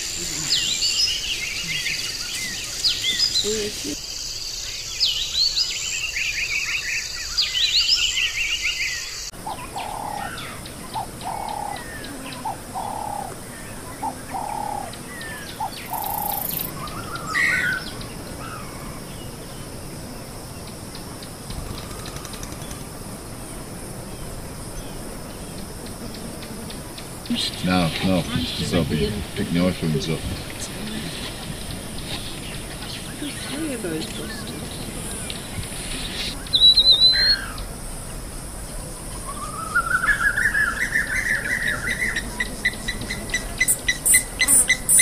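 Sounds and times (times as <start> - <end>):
birds chirping: 0.0 - 45.0
dove cooing: 9.4 - 17.8.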